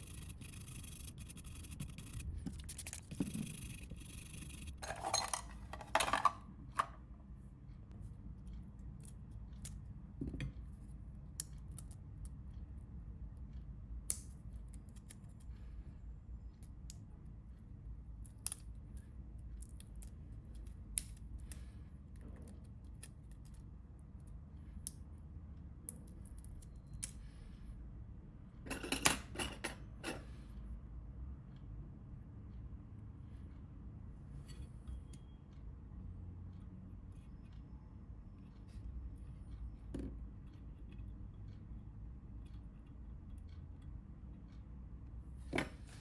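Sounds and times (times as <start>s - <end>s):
low steady hum: 0.0s - 46.0s
metal tools clicking and tapping: 4.1s - 7.0s, 28.7s - 30.4s.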